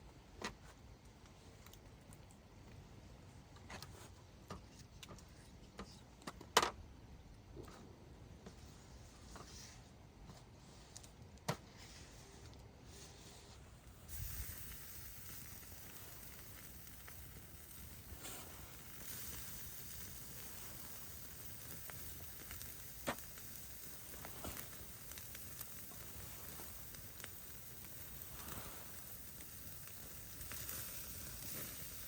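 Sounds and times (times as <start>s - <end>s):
sharp pops and crackles: 13.8s - 32.0s
food sizzling in a pan: 14.1s - 32.0s.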